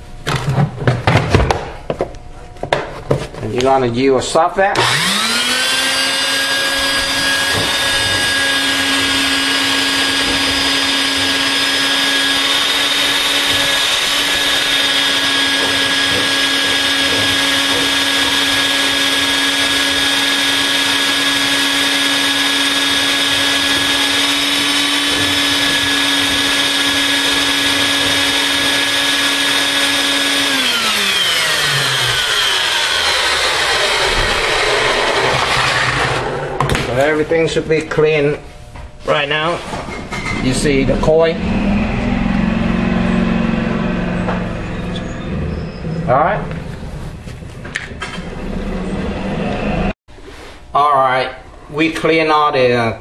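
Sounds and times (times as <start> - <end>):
vacuum motor spinning down: 4.8 - 36.8, 41.0 - 45.6
vacuum cleaner running: 4.8 - 37.4, 40.5 - 45.5, 47.7 - 50.0.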